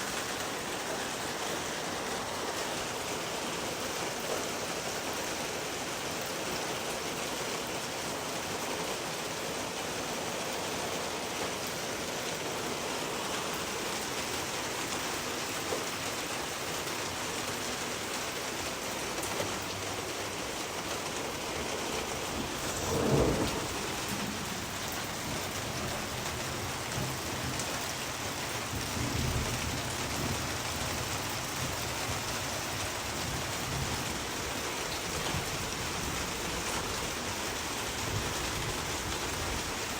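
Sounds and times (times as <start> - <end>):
steady rain falling: 0.0 - 39.9
thunder rumbling: 21.4 - 27.8.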